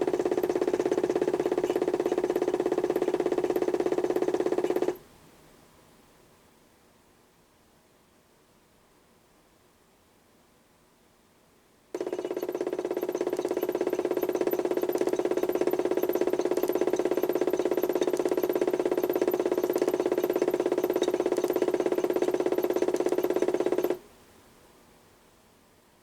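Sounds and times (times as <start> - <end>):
toy washing machine motor whine: 0.0 - 5.0, 12.0 - 24.0.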